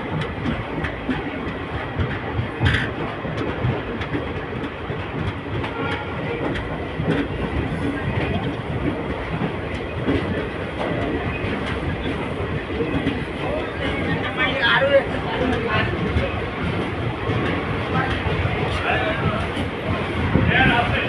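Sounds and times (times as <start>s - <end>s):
train wheels on rails: 0.0s - 21.0s.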